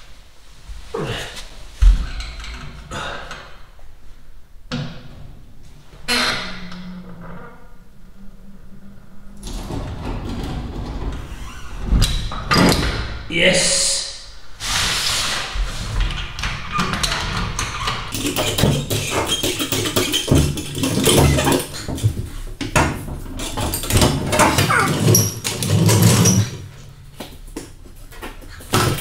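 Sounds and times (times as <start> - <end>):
metal tools clanking and scraping: 16.9 - 22.4, 23.0 - 26.7.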